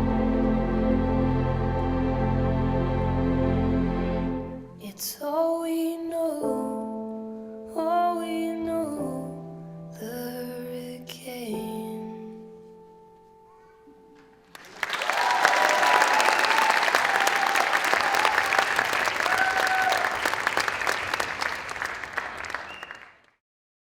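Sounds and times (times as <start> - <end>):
song's held notes: 0.0 - 14.4
audience applauding and cheering: 14.5 - 23.4
high whoops: 15.0 - 20.4.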